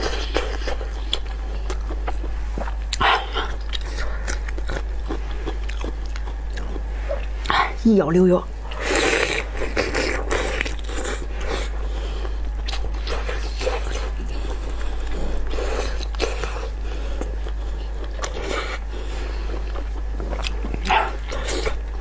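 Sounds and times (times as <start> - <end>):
wet chewing and lip smacking: 0.0 - 7.6, 12.2 - 22.0.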